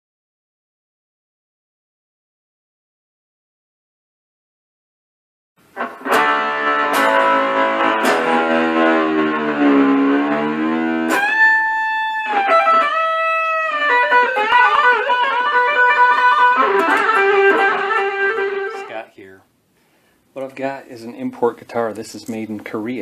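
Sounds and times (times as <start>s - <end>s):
electric guitar playing: 5.7s - 19.0s.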